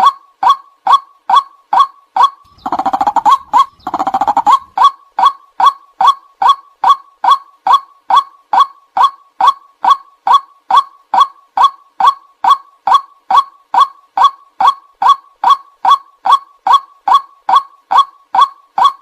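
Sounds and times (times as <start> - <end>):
waterhen kwak calls: 1.8 - 7.4.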